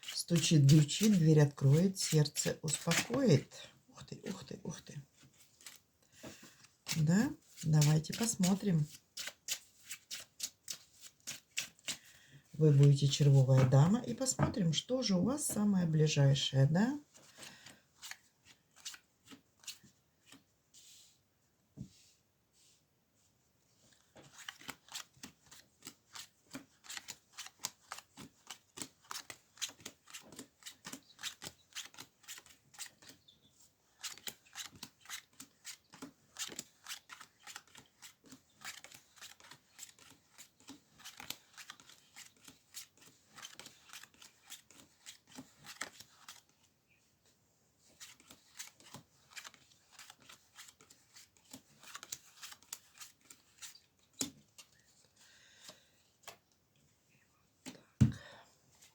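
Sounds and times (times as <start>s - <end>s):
cards being shuffled: 0.0s - 3.3s, 5.2s - 5.8s, 6.4s - 12.1s, 17.2s - 20.4s, 23.9s - 33.2s, 33.9s - 46.6s, 47.9s - 54.7s.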